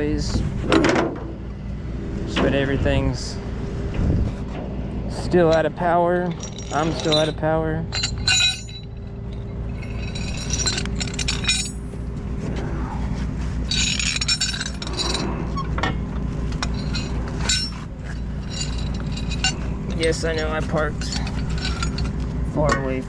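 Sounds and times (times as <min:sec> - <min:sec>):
engine idling: 0:04.8 - 0:23.0
metallic clinking and jingling: 0:05.4 - 0:12.1, 0:13.6 - 0:22.3.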